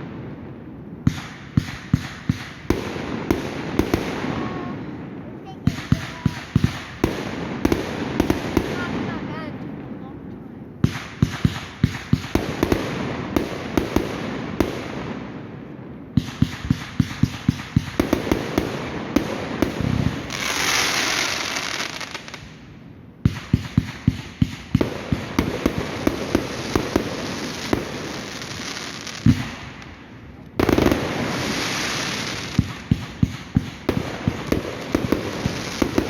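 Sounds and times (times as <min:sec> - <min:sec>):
fireworks cracking and banging: 0:00.0 - 0:36.0
firework hiss: 0:16.4 - 0:22.6, 0:23.4 - 0:30.0, 0:30.6 - 0:36.0.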